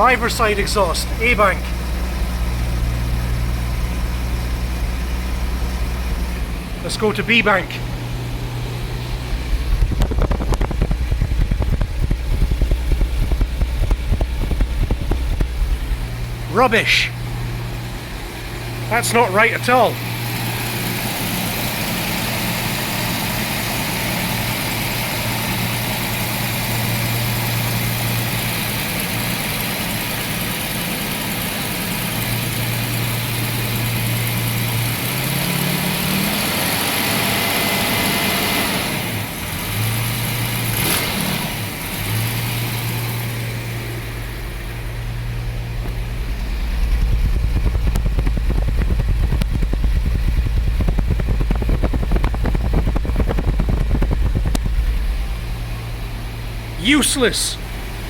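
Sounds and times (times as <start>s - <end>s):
car engine idling unevenly: 0.0s - 58.0s
deep rumble: 7.7s - 18.9s, 44.0s - 56.8s.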